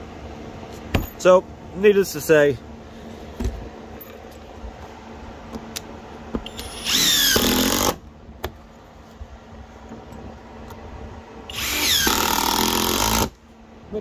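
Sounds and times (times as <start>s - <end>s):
impact driver running: 6.4s - 8.0s, 11.5s - 13.4s.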